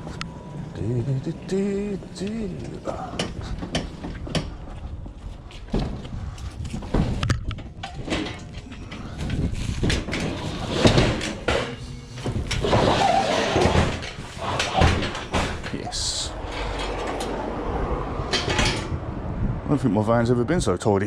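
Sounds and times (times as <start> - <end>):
scrap metal knocks and rattles: 5.7 - 17.5, 18.3 - 19.0.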